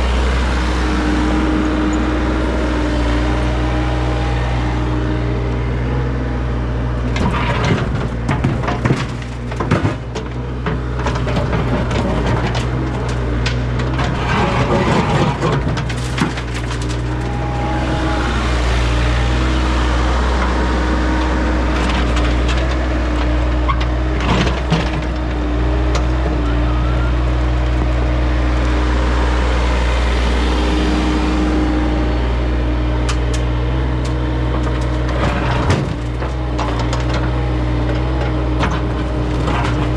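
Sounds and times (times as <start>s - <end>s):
digging machine engine running: 0.0s - 39.9s
cracking and crunching of material: 7.1s - 18.9s, 33.1s - 39.9s.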